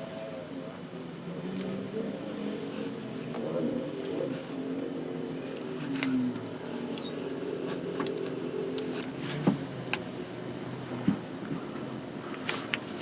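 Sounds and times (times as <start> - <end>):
metal tools clinking on engine parts: 5.3 - 7.4.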